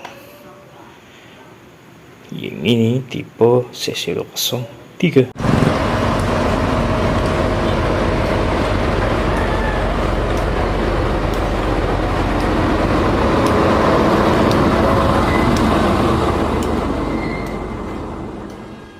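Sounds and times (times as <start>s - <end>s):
low engine rumble: 5.4s - 18.9s
road and traffic noise: 5.4s - 18.9s.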